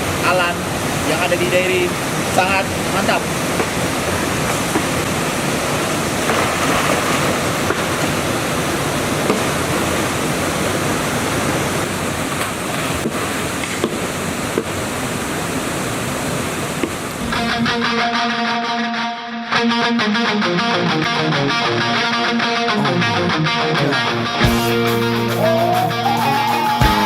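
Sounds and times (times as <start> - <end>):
stream rushing water: 0.0 - 18.6.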